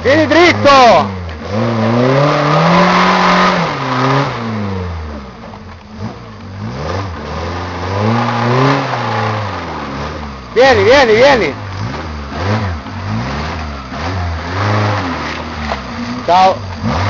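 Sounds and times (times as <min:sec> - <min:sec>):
car engine revving hard: 0:00.0 - 0:17.0
wheels digging in mud: 0:05.1 - 0:17.0.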